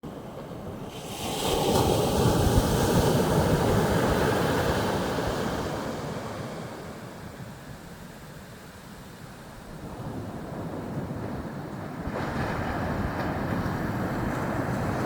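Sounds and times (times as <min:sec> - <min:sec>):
wave breaking on beach: 0:00.8 - 0:07.2.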